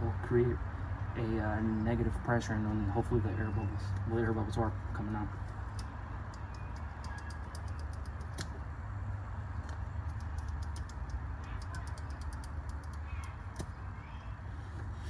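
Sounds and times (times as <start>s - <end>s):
hand pump clicking: 5.4s - 8.5s.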